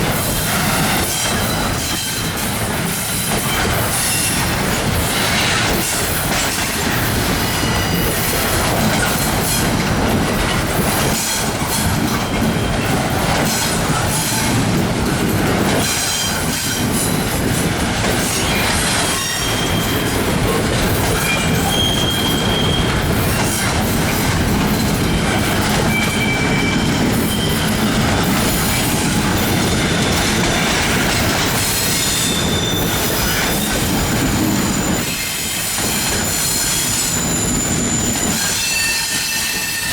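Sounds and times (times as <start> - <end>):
train wheels rumbling on rail: 0.0 - 39.9
high wheel squeals: 7.3 - 8.4, 18.3 - 20.2, 21.2 - 23.3, 24.7 - 28.8, 31.7 - 39.9.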